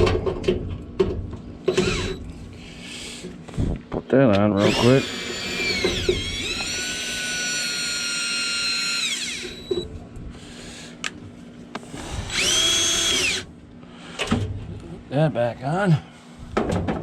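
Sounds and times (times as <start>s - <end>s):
power drill whining: 1.6s - 2.2s, 4.6s - 9.8s, 12.0s - 13.5s
drill clicks: 1.7s - 2.2s, 4.6s - 9.8s, 12.3s - 13.4s.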